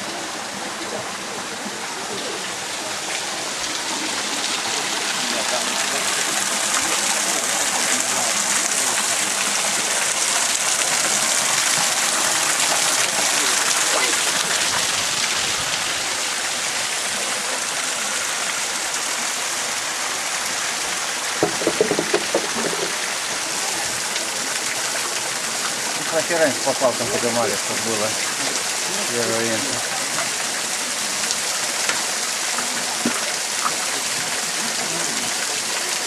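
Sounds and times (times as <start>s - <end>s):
waterfall rushing water: 0.0s - 36.0s.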